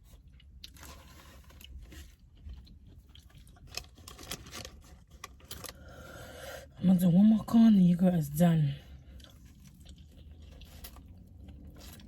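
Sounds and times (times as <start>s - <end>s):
chewing and crunching food: 0.0s - 6.2s, 8.7s - 12.0s.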